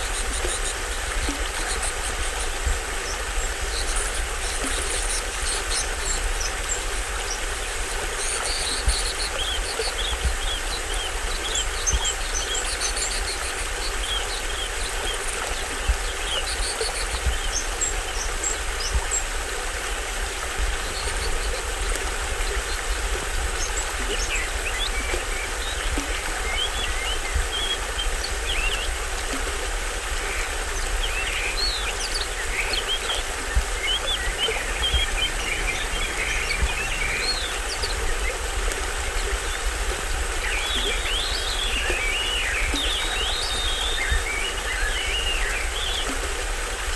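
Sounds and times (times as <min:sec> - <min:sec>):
deep water rumble: 0:00.0 - 0:46.9
small waterfall splashing: 0:00.0 - 0:46.9.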